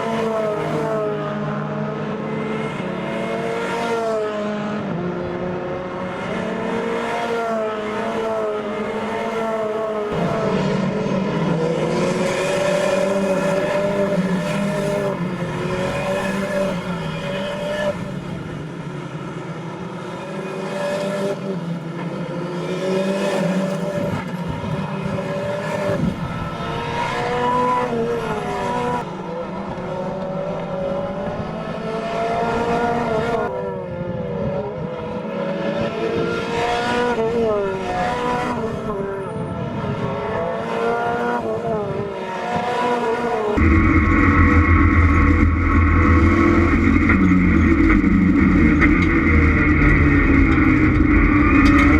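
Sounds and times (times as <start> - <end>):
race car engines revving: 0.0 - 51.9
deep steady engine: 43.6 - 51.9.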